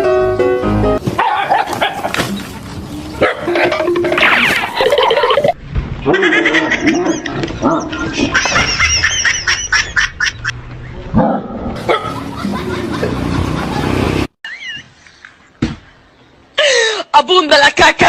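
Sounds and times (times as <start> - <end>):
dog barking: 1.2 - 2.2, 3.2 - 3.8, 11.2 - 12.2.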